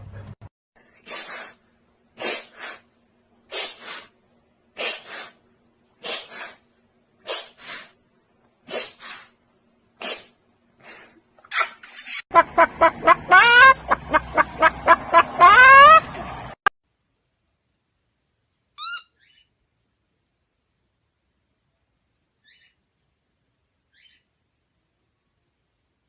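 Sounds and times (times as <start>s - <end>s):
bird hissing bursts: 1.0s - 1.6s, 2.2s - 2.9s, 3.5s - 4.2s, 4.8s - 5.4s, 6.0s - 6.6s, 7.2s - 8.0s, 8.7s - 9.4s, 10.0s - 10.4s.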